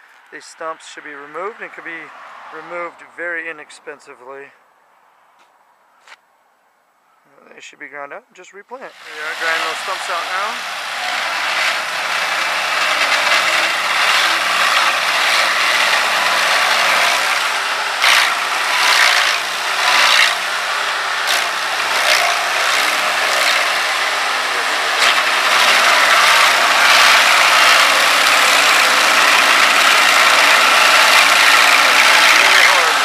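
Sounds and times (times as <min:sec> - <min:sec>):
stump grinder grinding: 0:08.9 - 0:33.0.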